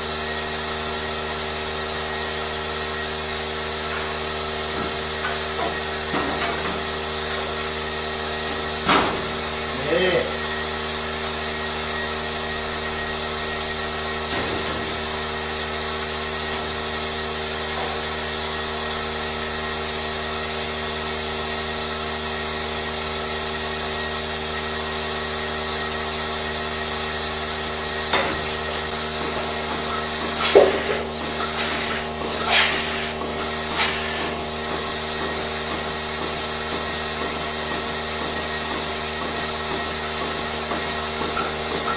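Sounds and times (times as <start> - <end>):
machinery humming: 23.8 - 41.9.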